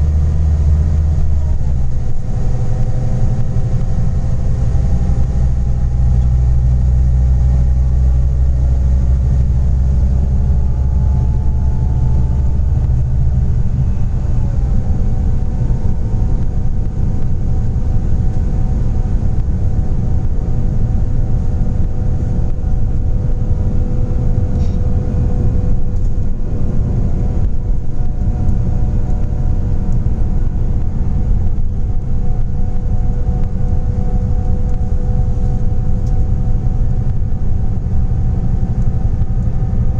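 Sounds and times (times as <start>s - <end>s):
bus engine droning: 0.0s - 39.9s.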